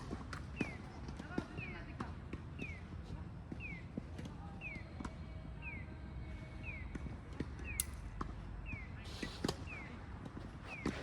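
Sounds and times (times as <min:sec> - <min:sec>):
shoe scuff: 0:10.4 - 0:11.0.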